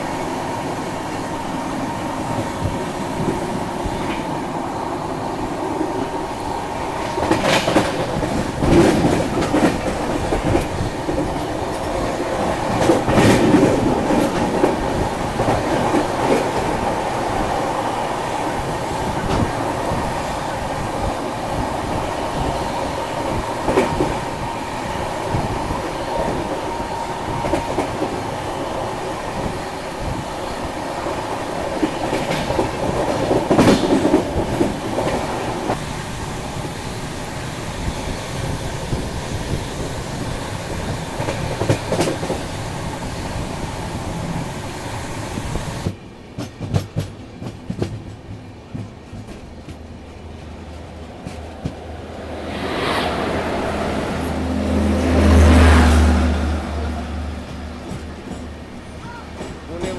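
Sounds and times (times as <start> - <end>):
train coach rumbling: 0.0 - 59.9.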